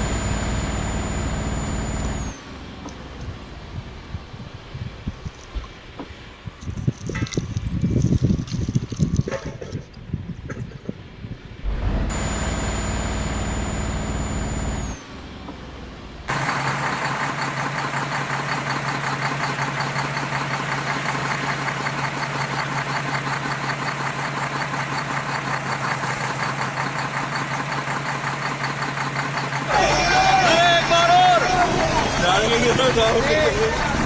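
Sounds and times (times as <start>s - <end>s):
engine with high whistle: 0.0s - 2.6s, 11.7s - 15.2s
engine running with fast pulse: 0.0s - 4.3s, 11.6s - 30.0s.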